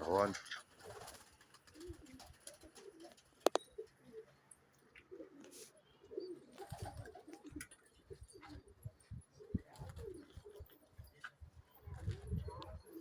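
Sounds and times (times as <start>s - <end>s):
pigeons cooing: 0.4s - 13.0s.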